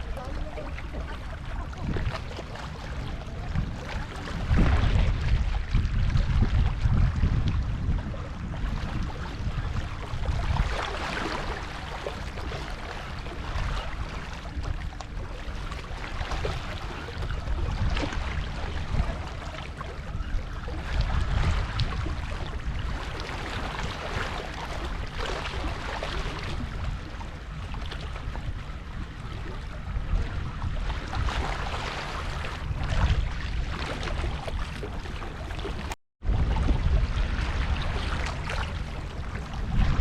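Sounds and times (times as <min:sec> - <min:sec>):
low rumble: 0:00.0 - 0:11.0, 0:32.5 - 0:40.0
hiss of water and sea: 0:00.0 - 0:40.0
wind buffeting microphone: 0:00.0 - 0:40.0.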